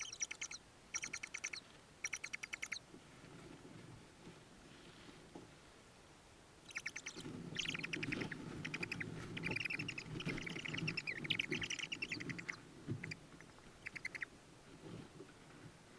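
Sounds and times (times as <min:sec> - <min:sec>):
owls chittering: 0:00.0 - 0:02.8, 0:06.7 - 0:14.3
soft rustling in nest box: 0:07.2 - 0:15.9.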